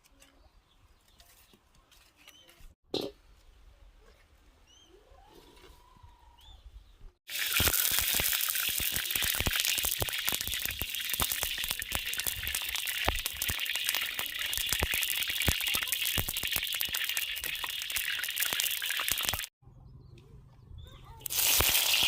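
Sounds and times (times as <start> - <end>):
food sizzling in hot pan: 7.3 - 19.5, 21.3 - 22.0.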